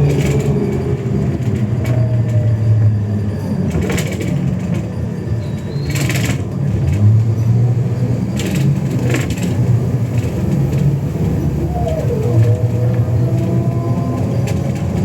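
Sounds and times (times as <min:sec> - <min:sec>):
bus engine droning: 0:00.0 - 0:15.0.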